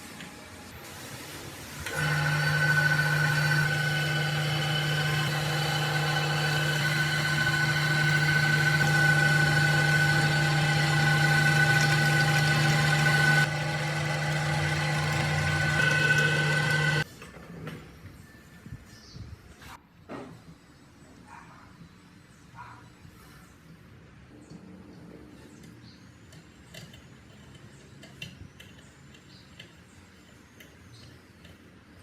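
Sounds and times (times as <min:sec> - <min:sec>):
small motor humming: 0:01.8 - 0:17.1.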